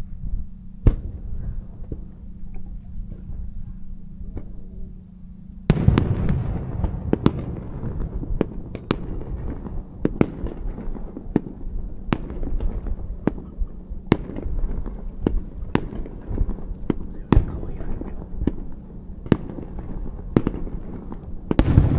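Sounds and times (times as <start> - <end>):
fireworks bursts and bangs: 5.7 - 21.9.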